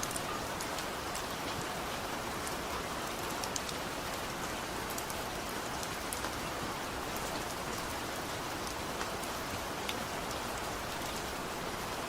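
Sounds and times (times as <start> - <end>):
rain drop ticks: 0.0 - 1.8, 2.4 - 6.4, 8.6 - 11.3
heavy rain falling: 0.0 - 12.0.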